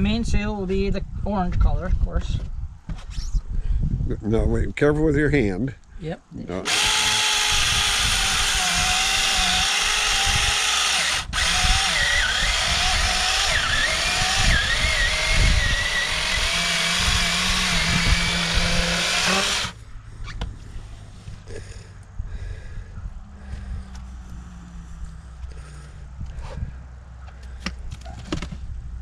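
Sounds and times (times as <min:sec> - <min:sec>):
small chainsaw cutting: 0:06.6 - 0:19.8.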